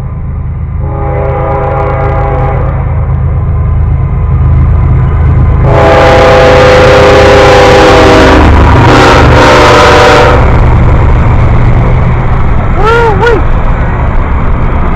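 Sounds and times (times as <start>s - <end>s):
low rumble of locomotive engine: 0.0s - 14.9s
locomotive air horn blast: 0.8s - 3.1s, 5.6s - 10.6s.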